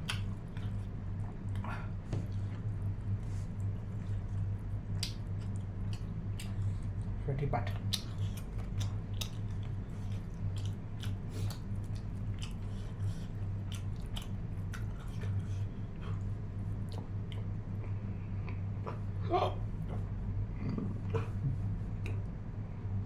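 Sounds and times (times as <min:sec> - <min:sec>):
person chewing meat: 0:00.0 - 0:22.3
low electrical hum: 0:00.0 - 0:23.0.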